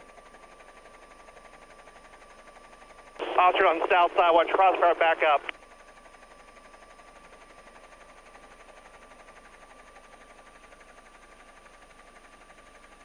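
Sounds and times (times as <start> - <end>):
radio static hiss: 3.2 - 5.5.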